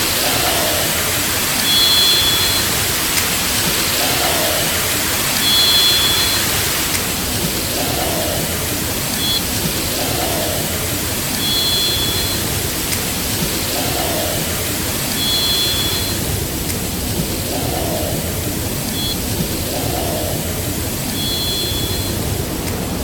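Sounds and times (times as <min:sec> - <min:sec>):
loud steady hiss: 0:00.0 - 0:23.0
high two-tone call: 0:11.4 - 0:12.5.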